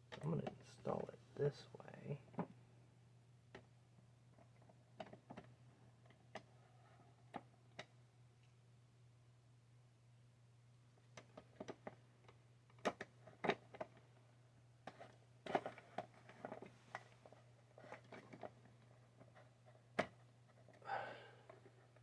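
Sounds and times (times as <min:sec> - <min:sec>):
faint low hum: 0:00.0 - 0:22.0
plastic parts clicking and knocking: 0:04.3 - 0:06.5, 0:11.1 - 0:14.1, 0:14.8 - 0:20.8.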